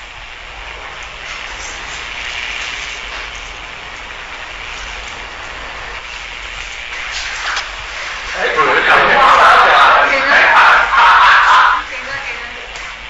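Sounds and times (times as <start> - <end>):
constant low hum: 0.0 - 13.0
recording hiss and crackle: 0.0 - 13.0.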